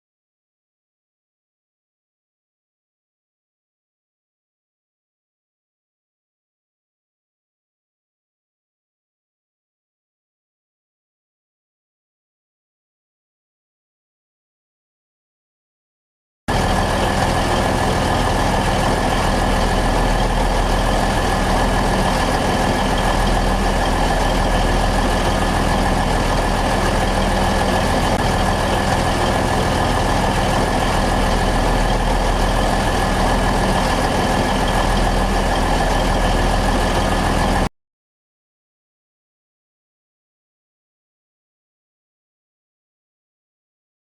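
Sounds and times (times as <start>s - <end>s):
high whine: 16.5s - 37.7s
locomotive diesel engines running: 16.5s - 37.7s.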